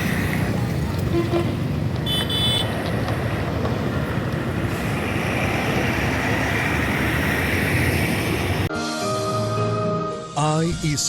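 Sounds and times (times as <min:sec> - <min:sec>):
freight train rumbling on bridge: 0:00.0 - 0:08.7
rushing hiss: 0:04.5 - 0:08.7.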